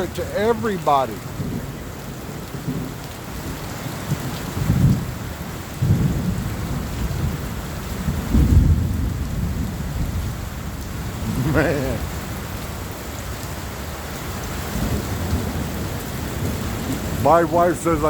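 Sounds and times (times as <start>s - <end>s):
thunder rumbling: 0.0s - 3.6s, 5.8s - 12.2s
heavy rain falling: 0.0s - 18.0s.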